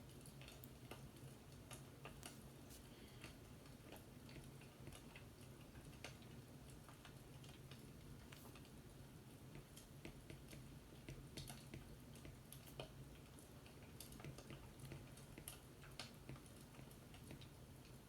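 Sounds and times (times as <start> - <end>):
faint fireplace crackling: 0.0 - 18.0.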